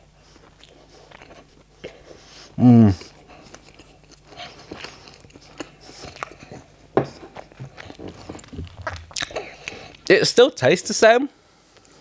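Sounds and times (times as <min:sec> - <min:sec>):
person chewing: 0:00.1 - 0:10.1
wet mouth clicks and smacks: 0:07.8 - 0:10.1.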